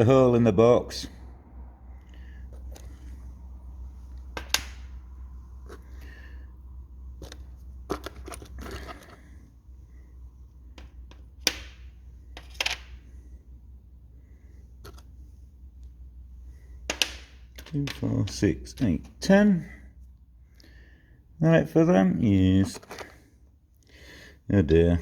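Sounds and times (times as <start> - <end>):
low steady hum: 0.0 - 25.0
small metal parts clinking: 12.3 - 13.0.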